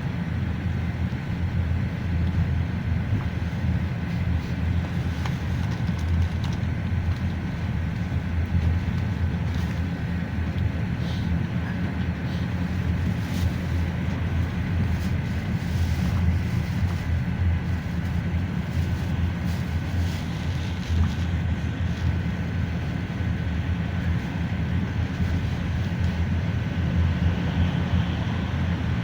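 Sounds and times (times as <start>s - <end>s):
engine and road rumble: 0.0s - 29.0s.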